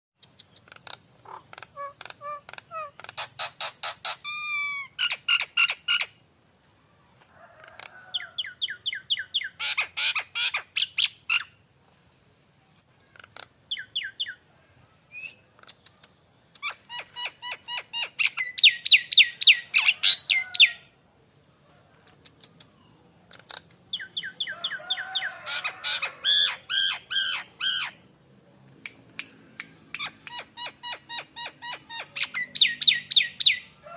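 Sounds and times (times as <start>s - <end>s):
myna whistling calls: 30.0s - 33.7s.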